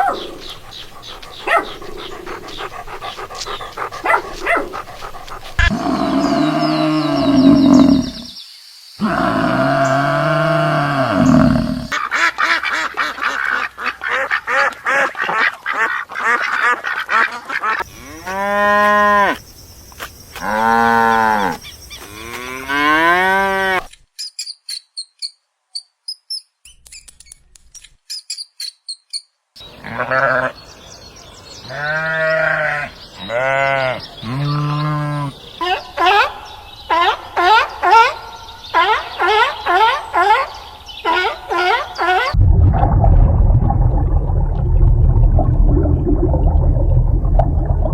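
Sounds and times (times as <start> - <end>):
rapid pulsing animal calls: 0.0 - 8.3
farm animal long calls: 0.0 - 8.4, 9.0 - 12.0.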